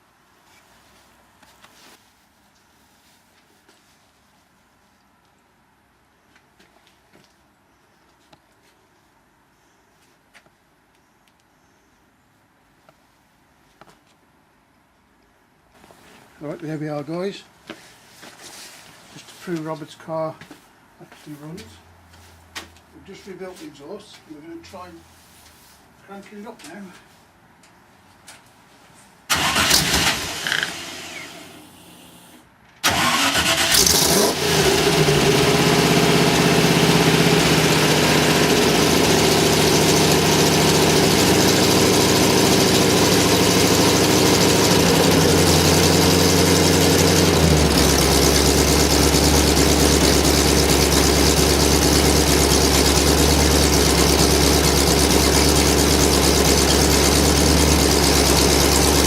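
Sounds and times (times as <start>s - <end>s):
car engine starting and running: 29.3s - 59.0s.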